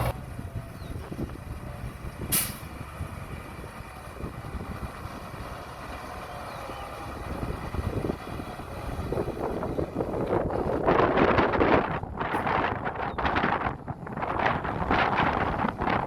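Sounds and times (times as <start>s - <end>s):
diesel engine low rumble: 0.0s - 16.0s
short sharp hiss: 2.3s - 2.7s.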